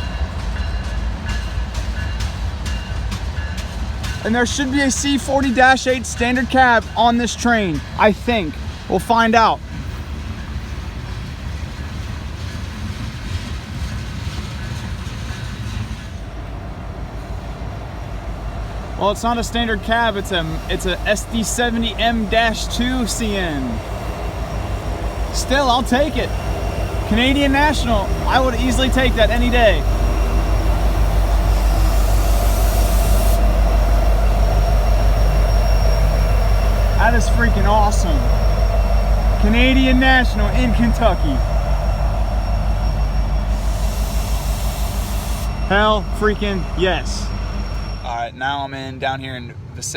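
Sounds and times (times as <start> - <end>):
train wheels rumbling on rail: 0.0 - 49.9
faint steady ring: 18.1 - 48.2
high hiss: 18.4 - 48.2.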